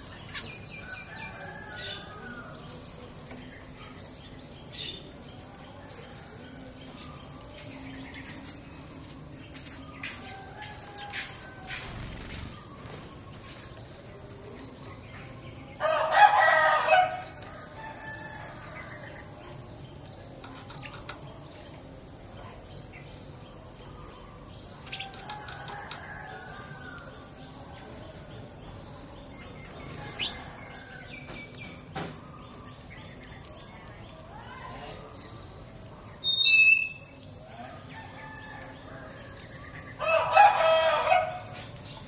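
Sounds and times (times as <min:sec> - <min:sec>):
sparrow chirps: 0:35.2 - 0:37.4.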